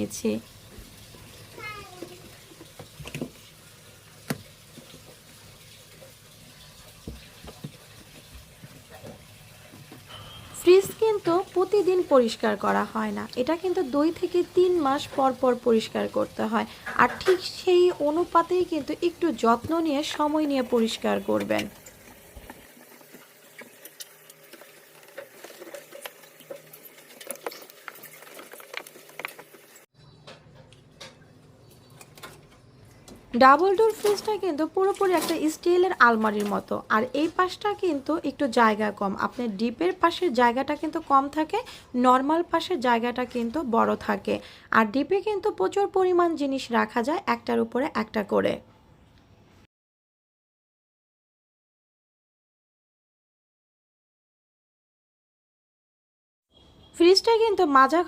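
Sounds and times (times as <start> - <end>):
faint water sounds: 0.0 - 29.9.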